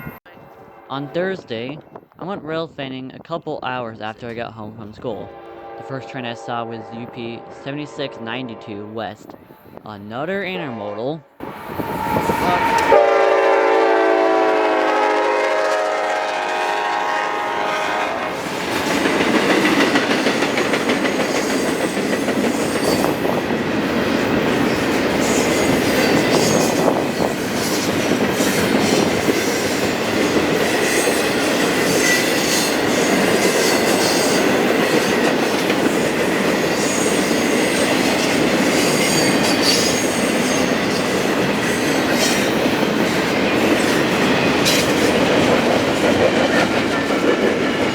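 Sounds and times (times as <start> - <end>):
locomotive horn: 0.0 - 1.9, 5.2 - 9.0, 10.5 - 18.8
freight train rolling past: 4.9 - 9.8, 11.4 - 47.9.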